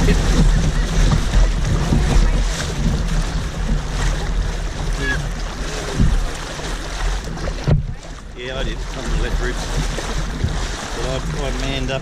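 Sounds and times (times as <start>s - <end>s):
river rapids churning: 0.0s - 12.0s
wind buffeting microphone: 0.0s - 12.0s.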